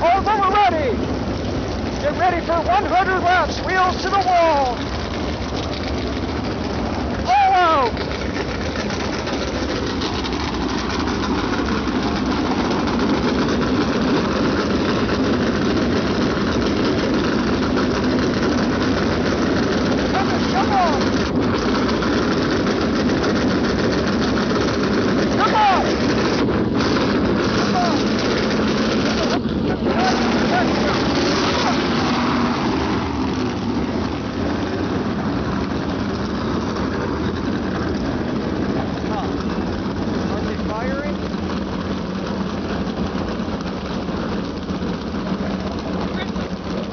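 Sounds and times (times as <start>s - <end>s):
race car engines running: 0.0s - 46.9s.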